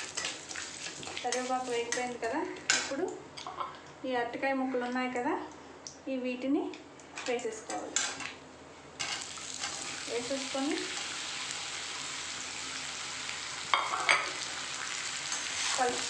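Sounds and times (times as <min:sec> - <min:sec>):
frying in hot oil sizzling: 0:00.0 - 0:02.3, 0:09.0 - 0:16.0.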